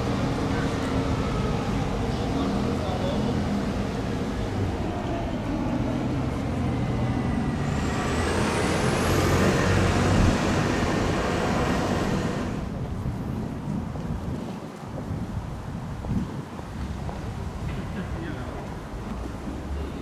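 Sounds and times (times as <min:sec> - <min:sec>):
bus engine humming: 0:00.0 - 0:13.4
loud hiss with rising whine: 0:07.5 - 0:12.7.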